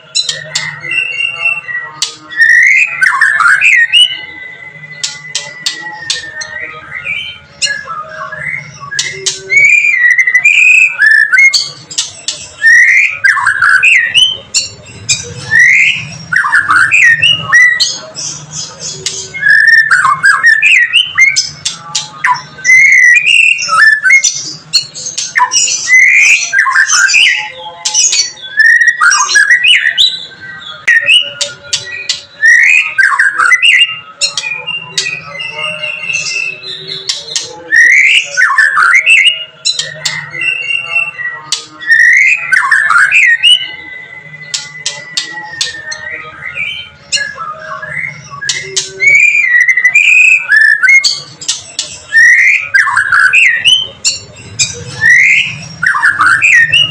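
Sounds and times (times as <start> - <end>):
bird singing whistles and clicks: 5.0 - 6.6, 8.4 - 17.9, 30.8 - 35.2, 37.0 - 40.4, 44.4 - 46.1, 47.1 - 56.9.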